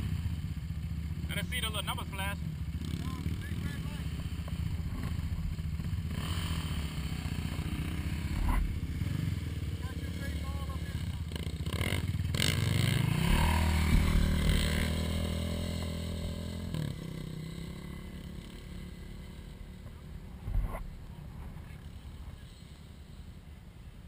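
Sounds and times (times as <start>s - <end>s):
atv engine at high revs: 0.0s - 23.3s
thud: 13.2s - 15.2s.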